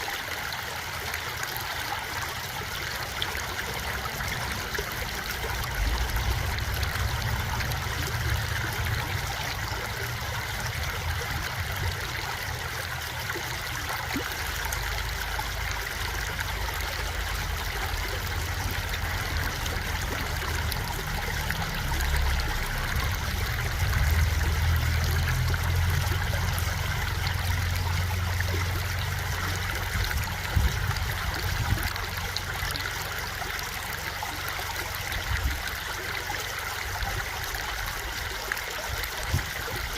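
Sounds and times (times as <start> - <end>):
stream of water flowing: 0.0 - 39.9
low rumble: 3.9 - 13.4, 15.1 - 32.5.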